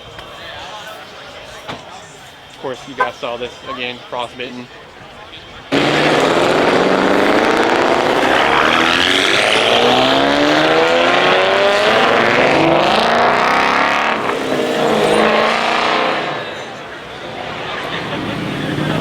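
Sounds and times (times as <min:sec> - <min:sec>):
car engine revving: 0:05.7 - 0:19.0.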